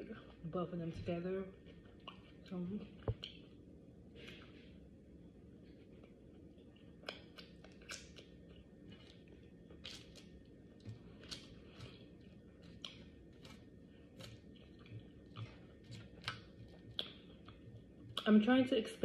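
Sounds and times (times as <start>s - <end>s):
chewing mouth clicks and smacks: 1.6s - 3.6s, 5.6s - 18.3s.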